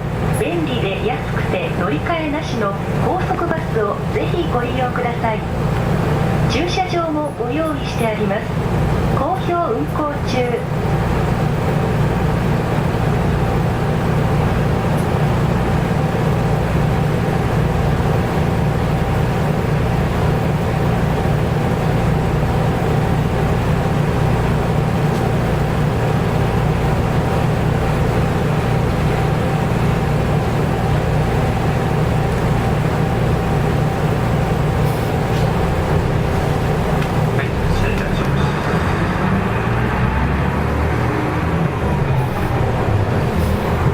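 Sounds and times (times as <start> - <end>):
bus diesel engine rumbling: 0.0 - 43.9.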